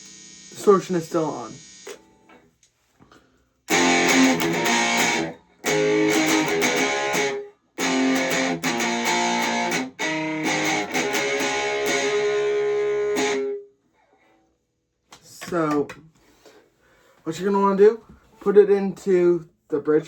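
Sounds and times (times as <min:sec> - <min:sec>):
distorted electric guitar: 0:00.0 - 0:02.2, 0:03.7 - 0:13.6.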